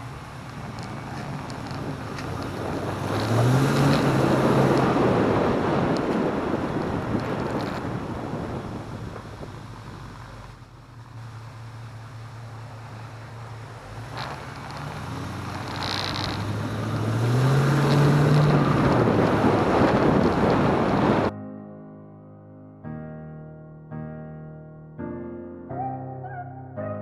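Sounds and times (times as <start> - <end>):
wind noise on microphone: 0.0 - 10.5, 14.1 - 21.3
car engine revving: 0.0 - 21.3.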